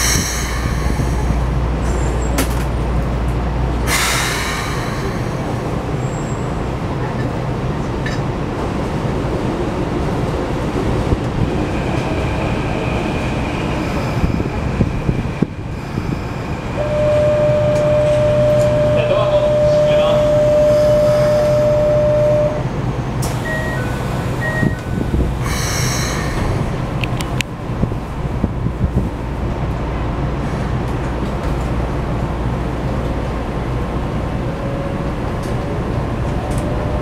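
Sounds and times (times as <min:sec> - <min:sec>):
air hiss: 0:00.0 - 0:01.5, 0:03.9 - 0:05.8, 0:25.4 - 0:26.8
train arriving on next track: 0:00.0 - 0:37.0
train equipment hum: 0:00.0 - 0:37.0
steady high tone: 0:15.7 - 0:22.8.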